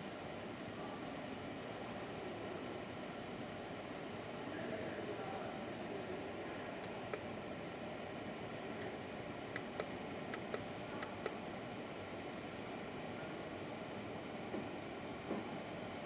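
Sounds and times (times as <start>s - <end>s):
steady background hiss: 0.0s - 16.0s
push-button switch clicking: 9.6s - 11.4s.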